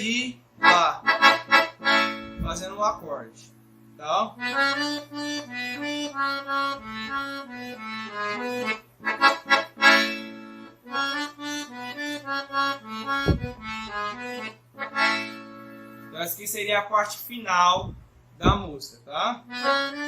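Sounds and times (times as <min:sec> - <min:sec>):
accordion playing slow melody: 0:00.6 - 0:03.0, 0:03.6 - 0:16.3, 0:19.4 - 0:20.0
low knock: 0:02.3 - 0:02.7, 0:13.2 - 0:14.0, 0:17.8 - 0:18.8.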